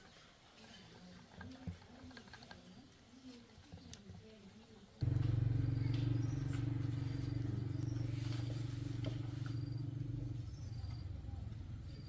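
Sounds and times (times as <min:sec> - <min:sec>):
small motorcycle engine idling: 0:05.0 - 0:12.0.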